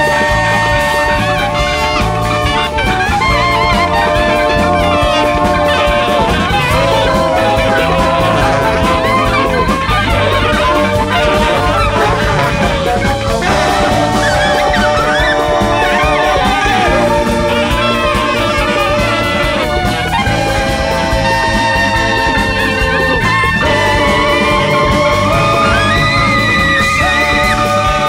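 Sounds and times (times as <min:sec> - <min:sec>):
bass: 0:00.0 - 0:28.0
drum kit beat: 0:00.0 - 0:28.0
saxophones and trumpet: 0:00.0 - 0:28.0.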